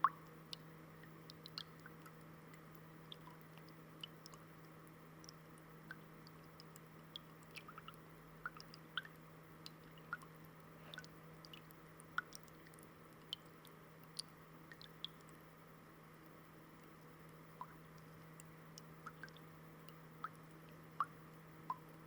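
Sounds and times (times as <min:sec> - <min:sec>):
fountain water dripping: 0:00.0 - 0:15.5, 0:16.6 - 0:22.0.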